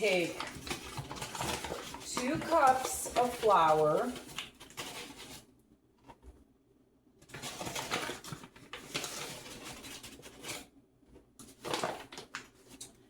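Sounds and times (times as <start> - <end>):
flour rustling and pouring: 0.0 - 5.4, 7.3 - 10.7, 11.5 - 13.0.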